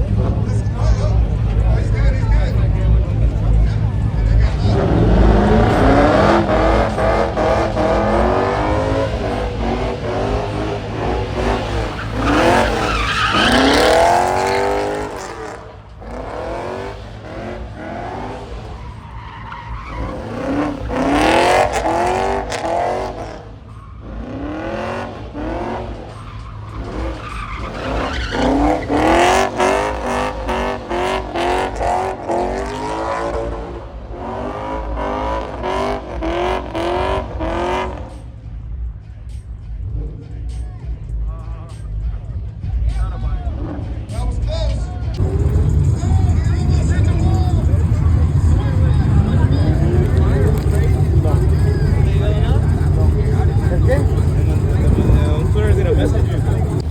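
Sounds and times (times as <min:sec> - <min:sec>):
car engines revving: 0:00.0 - 0:56.9
tire squeal: 0:03.7 - 0:38.4, 0:45.2 - 0:56.9
low rumble: 0:45.2 - 0:56.9.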